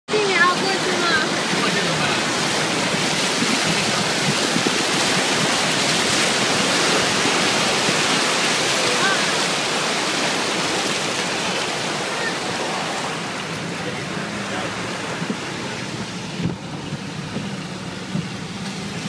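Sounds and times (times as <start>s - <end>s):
wind and rain rushing: 0.1s - 19.0s.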